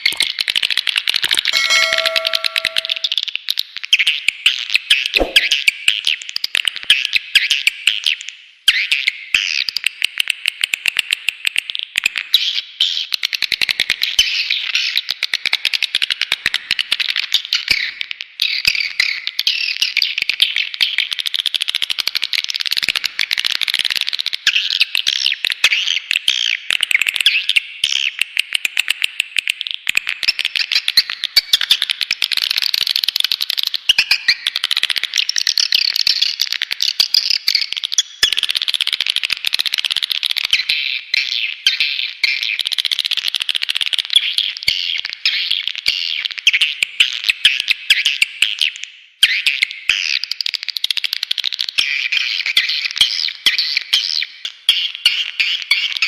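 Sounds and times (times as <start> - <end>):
high-pitched swiftlet chatter: 1.6 - 3.1.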